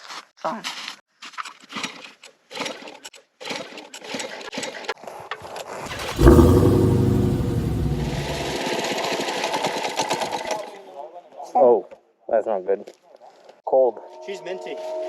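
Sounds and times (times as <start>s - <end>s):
minibike engine cranking: 5.9s - 8.0s
minibike engine idling fast: 5.9s - 8.5s.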